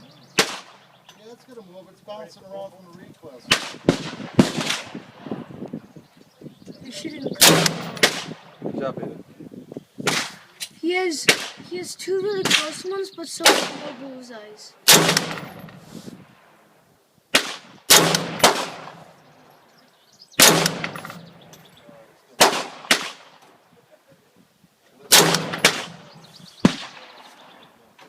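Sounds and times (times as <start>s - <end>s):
rifle shots with echo: 0.4s - 0.8s, 3.5s - 5.5s, 7.4s - 8.6s, 11.2s - 11.6s, 13.4s - 14.0s, 14.8s - 16.6s, 17.3s - 19.2s, 20.4s - 21.5s, 22.4s - 23.4s, 25.1s - 27.6s.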